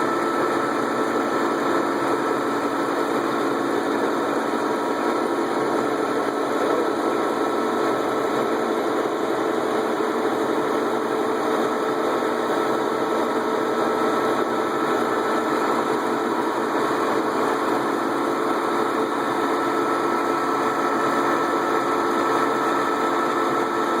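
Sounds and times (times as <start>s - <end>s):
lathe running: 0.0s - 24.0s.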